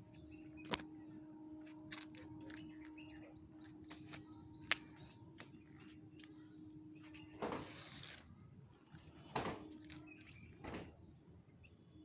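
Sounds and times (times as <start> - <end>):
steady low hum: 0.0 - 12.0
small bird chirping: 2.6 - 8.1.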